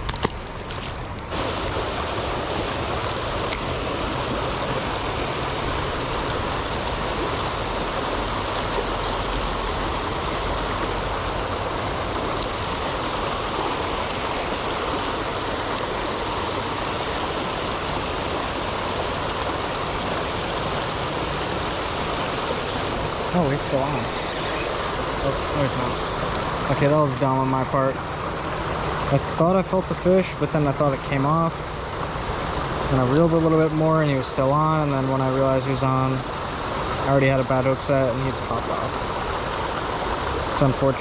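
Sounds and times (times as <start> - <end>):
river current rushing: 0.0 - 41.0.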